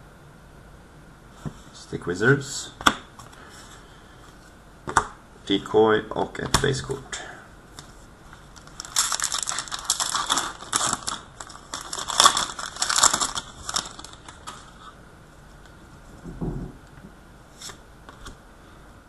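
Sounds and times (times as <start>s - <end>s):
card packs crinkling and sliding: 7.7s - 15.0s.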